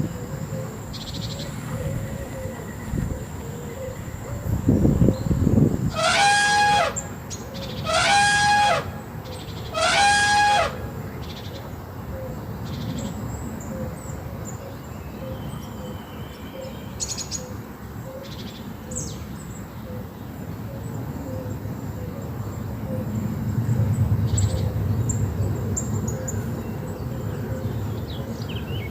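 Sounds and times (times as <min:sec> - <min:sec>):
animal calling: 0:05.9 - 0:10.9.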